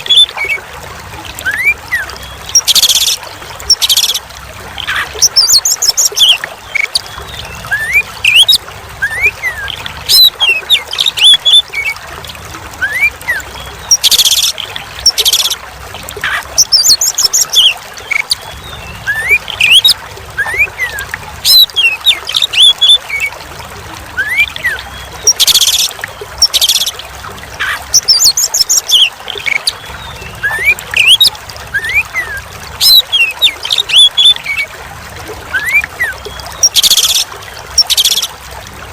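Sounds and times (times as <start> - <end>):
trickle of running water: 0.0 - 38.9
bird singing whistled song: 16.6 - 23.0, 24.2 - 27.0, 27.6 - 34.6.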